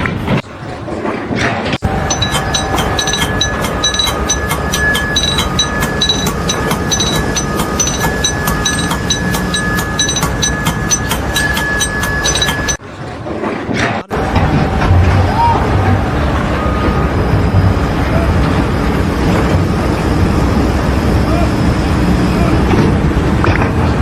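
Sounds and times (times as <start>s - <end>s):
machine running with rapid clicking: 1.8s - 12.8s.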